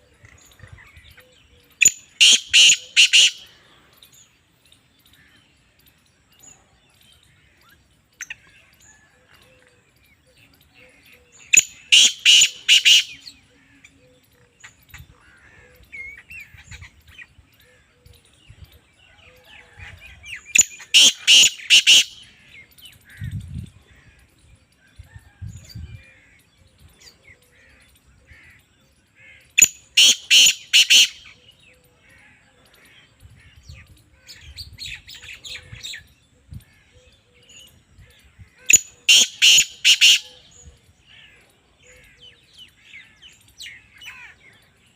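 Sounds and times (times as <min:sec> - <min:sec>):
francolin calling: 0:00.0 - 0:04.0, 0:10.7 - 0:18.2, 0:20.4 - 0:23.6, 0:29.2 - 0:31.8, 0:33.4 - 0:44.8
bird chirps: 0:00.0 - 0:44.9.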